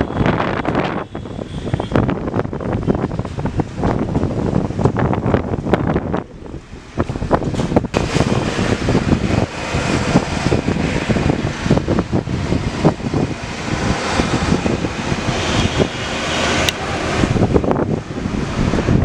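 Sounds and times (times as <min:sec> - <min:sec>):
wind buffeting microphone: 0:00.0 - 0:19.0
rain hissing: 0:07.9 - 0:18.9.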